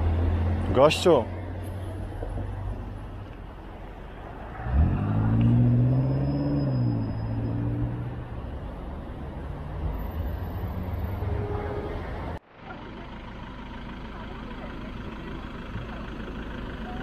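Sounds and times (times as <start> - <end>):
car engine accelerating: 0.0 - 11.4
city traffic rumble: 0.0 - 17.0.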